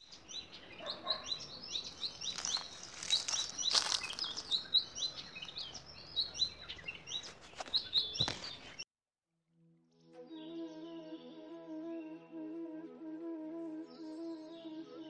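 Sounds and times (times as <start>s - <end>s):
small birds chirping: 0.0s - 8.8s
rustling: 1.8s - 8.8s.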